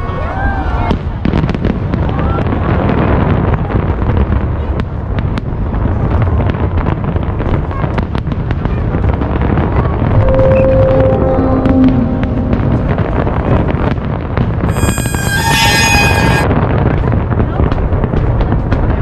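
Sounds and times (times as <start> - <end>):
fireworks cracks and bangs: 0.6 - 10.1, 12.8 - 19.0
low rumble: 10.0 - 14.6.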